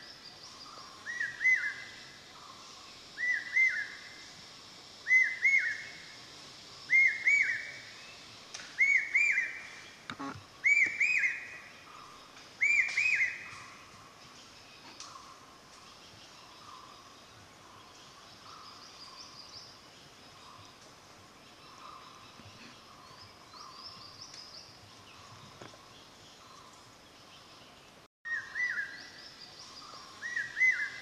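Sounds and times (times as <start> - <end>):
bird whistled call: 6.9 - 7.7, 8.8 - 9.6, 10.6 - 11.5, 12.6 - 13.6.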